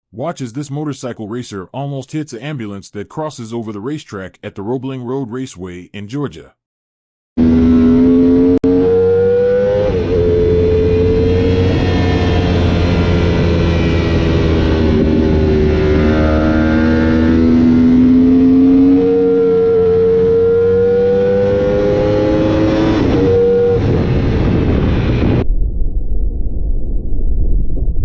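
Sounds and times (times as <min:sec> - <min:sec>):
racing motorcycle engine revving: 0:07.4 - 0:25.4
wind rumble on microphone: 0:10.6 - 0:16.1, 0:22.8 - 0:28.0.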